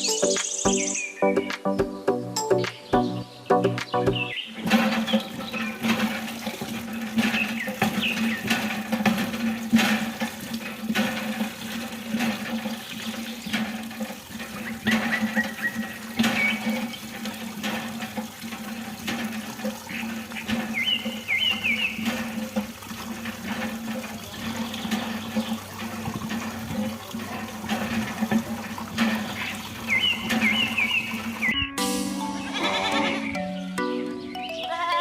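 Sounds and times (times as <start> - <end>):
water running and splashing: 3.7 - 31.6.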